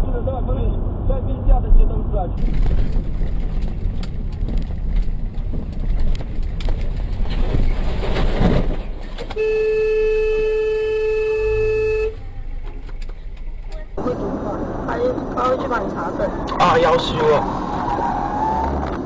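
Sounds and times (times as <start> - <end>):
traffic and road rumble: 0.0 - 19.0
car horn blast: 9.4 - 12.2.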